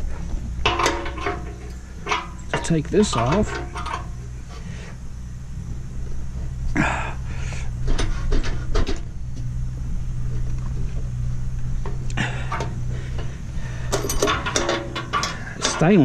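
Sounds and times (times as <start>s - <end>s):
steady low hum: 0.0s - 16.0s
metal parts clinking and scraping: 0.6s - 4.6s, 11.9s - 16.0s.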